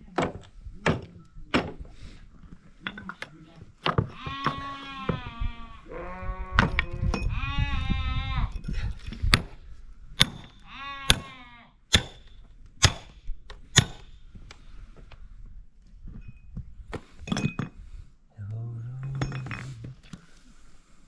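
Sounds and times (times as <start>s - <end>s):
livestock bleating: 4.1s - 8.5s, 10.6s - 11.8s.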